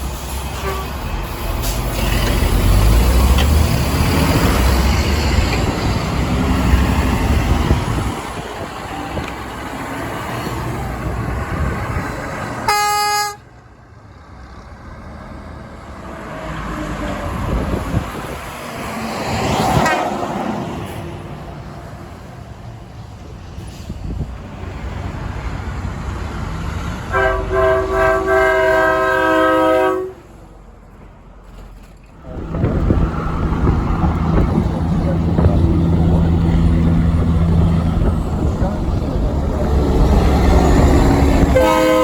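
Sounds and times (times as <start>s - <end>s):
truck engine rumble: 0.0s - 42.0s
truck horn blast: 0.5s - 1.1s, 12.6s - 13.5s, 27.1s - 30.3s, 41.3s - 42.0s
vehicle passing: 32.2s - 42.0s.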